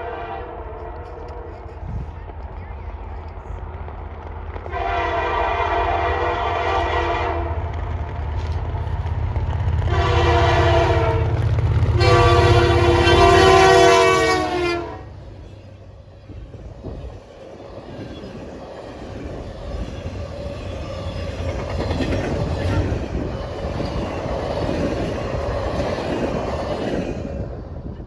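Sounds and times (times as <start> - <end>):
locomotive air horn blasts: 0.0 - 1.7, 4.7 - 7.6, 9.9 - 15.2
locomotive engine rumbling: 0.0 - 28.0.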